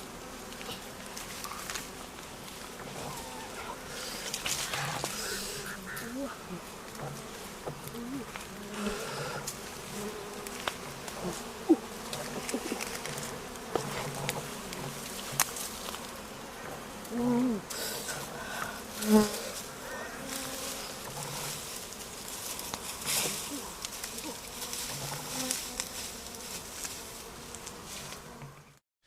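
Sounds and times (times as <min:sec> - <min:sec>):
insects buzzing: 0:00.0 - 0:28.8.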